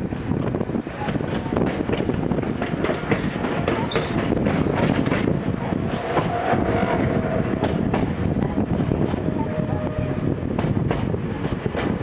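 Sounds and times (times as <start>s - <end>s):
train interior rumble: 0.0s - 12.0s
wheels clicking over rail joints: 1.0s - 6.4s.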